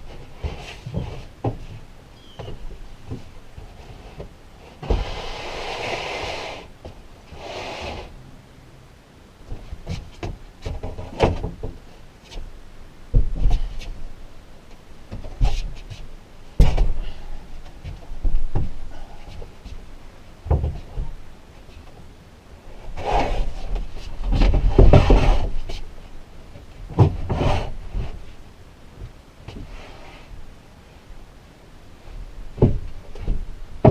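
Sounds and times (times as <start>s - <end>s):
wood scraping and rubbing: 0.0s - 8.1s, 22.7s - 25.9s, 27.0s - 28.4s
wooden boards knocking: 32.6s - 33.9s.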